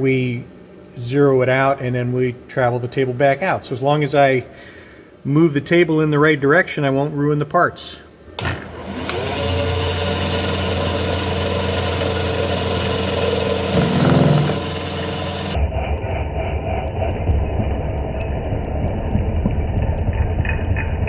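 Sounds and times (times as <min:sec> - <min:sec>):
milling machine cutting: 0:08.3 - 0:15.6.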